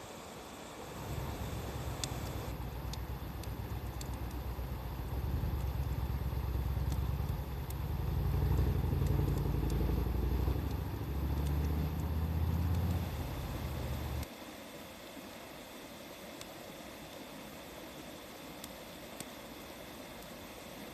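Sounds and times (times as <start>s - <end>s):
wood fire crackles: 0.7s - 14.3s, 16.4s - 20.9s
low engine drone: 0.8s - 14.2s.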